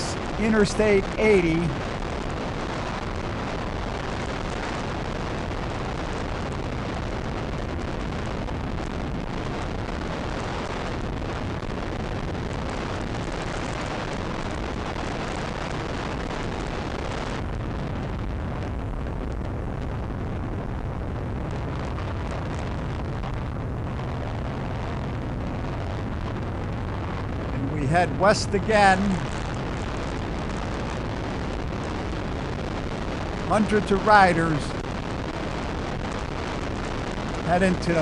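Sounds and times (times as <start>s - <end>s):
wind rush on microphone: 0.0s - 38.0s
motorcycle road noise: 22.4s - 29.8s.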